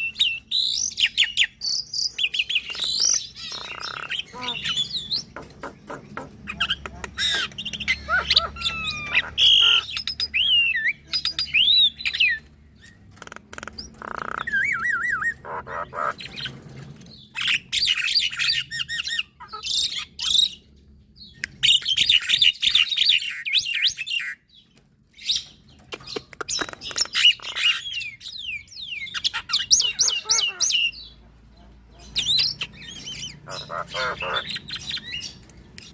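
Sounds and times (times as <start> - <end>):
birds singing and chattering: 0.0 - 35.9.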